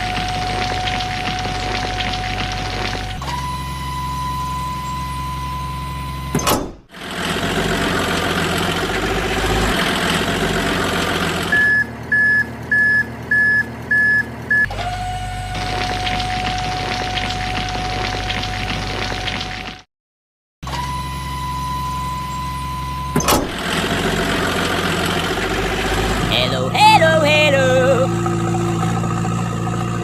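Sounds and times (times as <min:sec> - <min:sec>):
truck engine noise: 0:00.0 - 0:19.8, 0:20.6 - 0:30.0
reversing beeps: 0:03.2 - 0:06.4, 0:11.5 - 0:14.7, 0:20.7 - 0:23.3
steady electronic tone: 0:26.7 - 0:30.0.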